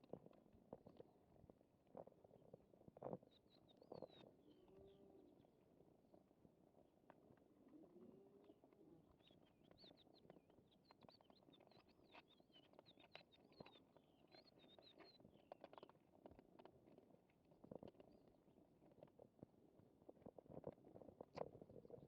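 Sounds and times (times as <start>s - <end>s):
small birds chirping: 9.1s - 16.0s
cats chewing food: 10.2s - 22.0s.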